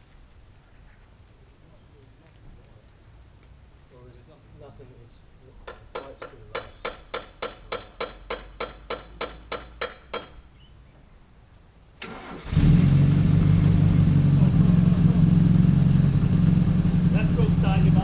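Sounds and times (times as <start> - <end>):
engine running loudly: 12.6 - 18.0.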